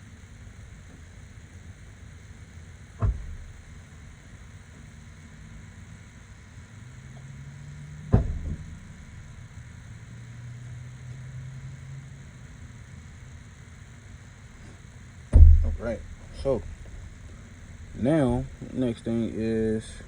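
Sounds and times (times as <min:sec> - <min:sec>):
vehicle engine hum: 0:00.0 - 0:20.0
sharp knock: 0:15.3 - 0:18.6.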